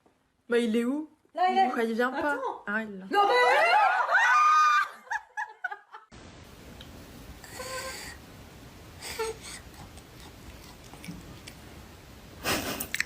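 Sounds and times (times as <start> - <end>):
steady background hiss: 5.7 - 13.0.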